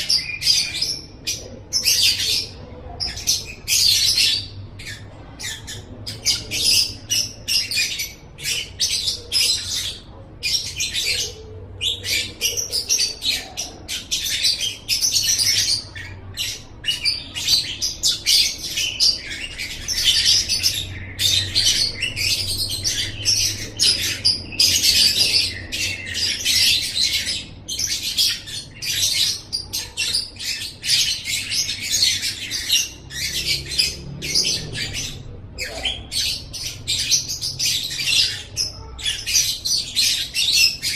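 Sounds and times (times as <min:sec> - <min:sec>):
bird chattering: 0:00.0 - 0:40.9.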